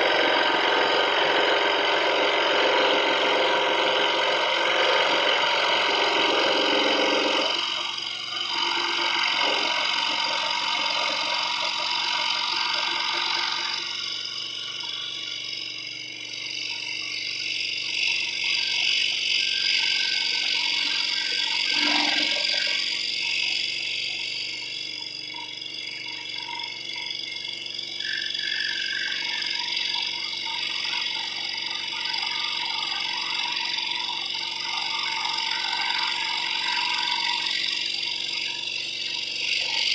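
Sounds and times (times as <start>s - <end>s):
scroll saw cutting wood: 0.0s - 24.7s.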